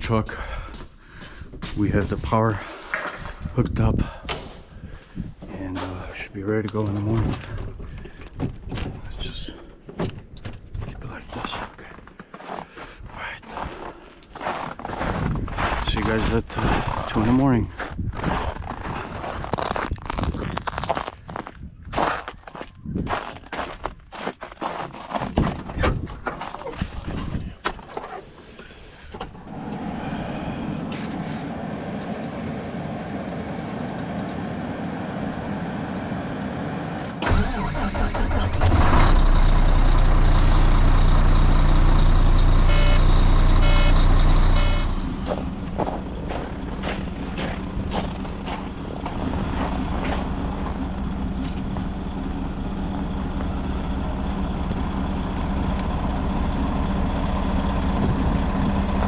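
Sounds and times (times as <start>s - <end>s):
diesel engine starting and idling: 28.8s - 59.0s
quick beeps: 42.7s - 44.0s, 44.6s - 45.0s.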